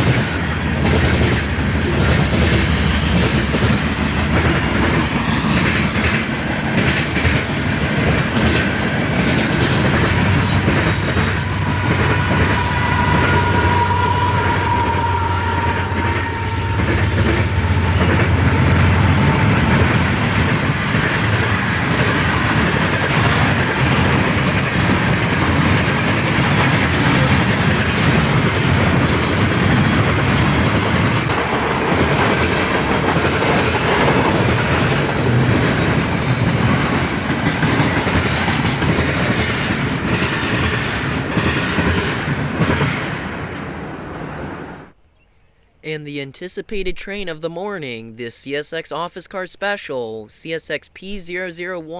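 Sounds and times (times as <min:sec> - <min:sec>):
train wheels clattering: 0:00.0 - 0:44.0
wheel squeal: 0:10.3 - 0:20.8.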